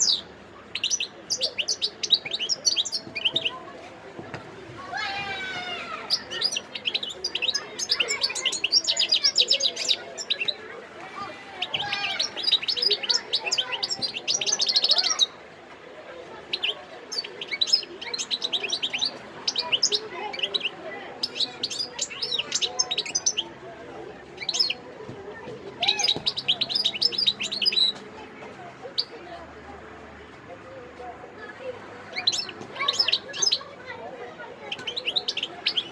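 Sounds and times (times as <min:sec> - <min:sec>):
goldfinch singing: 0:00.0 - 0:03.6, 0:05.4 - 0:10.7, 0:11.6 - 0:15.4, 0:16.4 - 0:23.6, 0:24.2 - 0:24.9, 0:25.8 - 0:28.0, 0:28.9 - 0:29.2, 0:32.0 - 0:34.0, 0:34.6 - 0:35.9.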